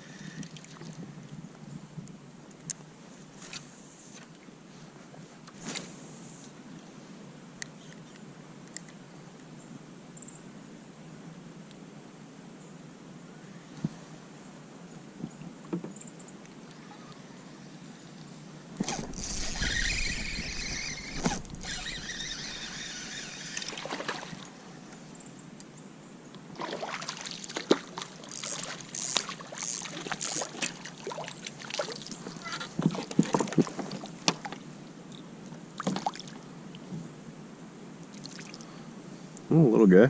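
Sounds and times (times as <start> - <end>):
water splashing: 18.8 - 24.5, 26.6 - 34.6.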